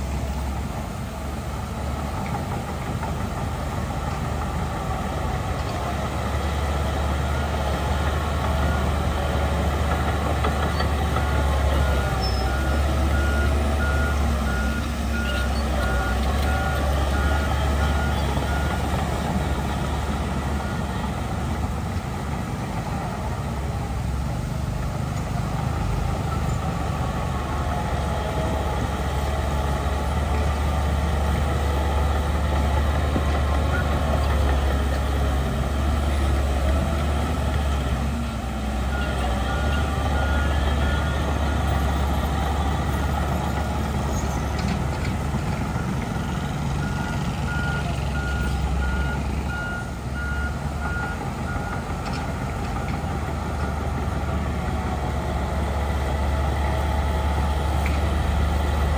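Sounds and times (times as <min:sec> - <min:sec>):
heavy diesel machinery rumbling: 0:00.0 - 0:58.9
reversing alarm beeping: 0:46.8 - 0:51.9.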